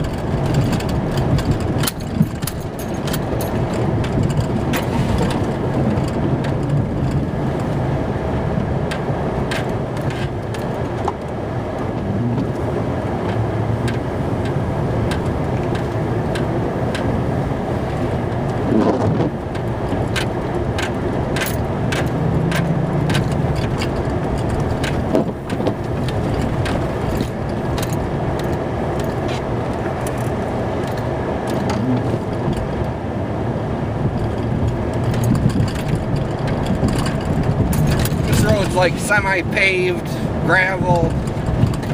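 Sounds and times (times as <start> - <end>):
clicks and rattles: 0.0 - 7.8, 17.9 - 32.9, 34.1 - 41.9
truck engine running: 0.0 - 41.9.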